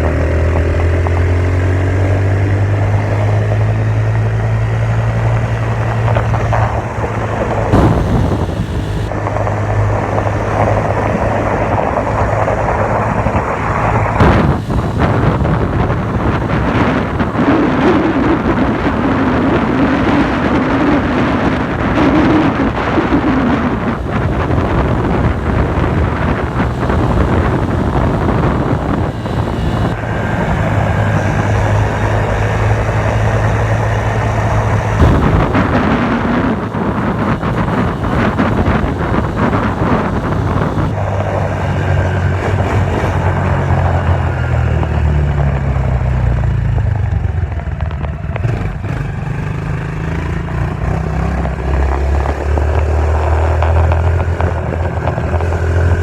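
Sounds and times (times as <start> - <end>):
dirt bike engine revving: 0.0 - 9.1, 14.2 - 20.6, 21.4 - 41.1
steady rushing noise: 3.2 - 44.1.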